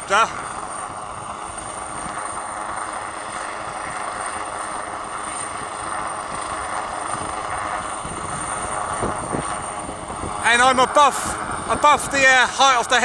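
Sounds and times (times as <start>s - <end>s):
helicopter hovering: 0.0s - 13.0s
wind on microphone: 5.4s - 12.4s.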